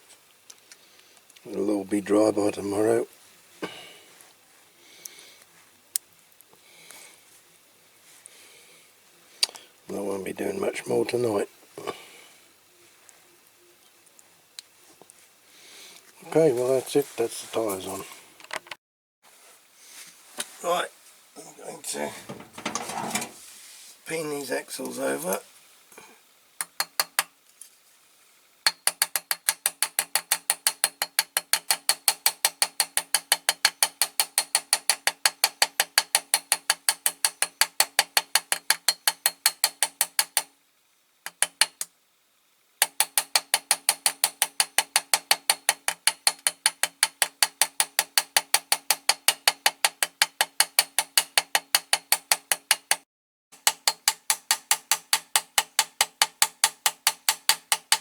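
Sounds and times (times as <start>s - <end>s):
small hammer tapping on metal: 22.3s - 23.3s, 26.6s - 27.3s, 28.7s - 40.5s, 41.3s - 41.9s, 42.8s - 53.0s, 53.6s - 58.0s.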